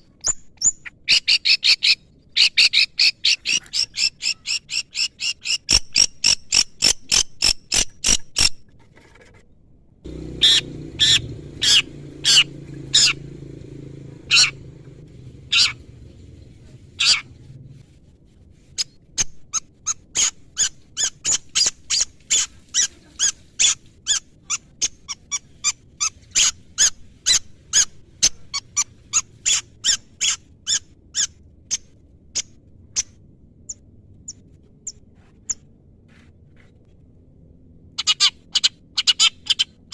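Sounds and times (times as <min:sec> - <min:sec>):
low rumble: 0:10.1 - 0:18.6.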